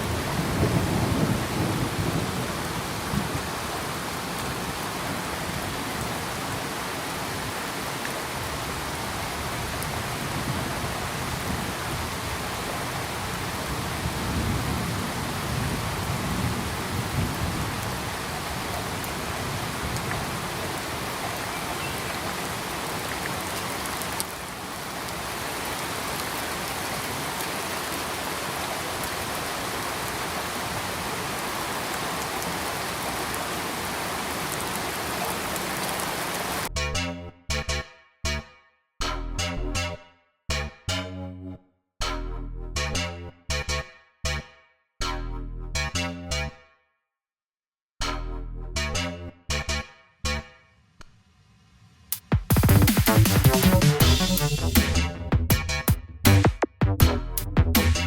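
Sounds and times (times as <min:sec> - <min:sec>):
thunder rumble: 0:00.0 - 0:03.5, 0:13.7 - 0:18.2
heavy rain falling: 0:00.0 - 0:36.7, 0:52.1 - 0:55.1.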